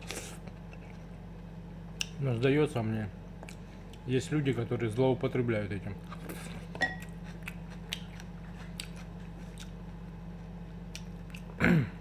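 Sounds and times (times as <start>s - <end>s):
man chewing: 0.0s - 1.2s, 3.4s - 4.1s, 6.0s - 11.6s
steady low hum: 0.0s - 12.0s.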